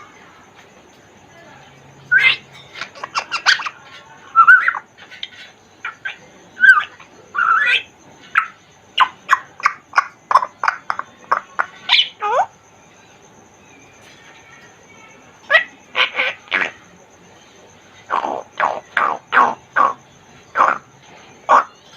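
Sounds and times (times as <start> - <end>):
parrot whistling and squawking: 2.1 - 12.5, 15.4 - 16.8.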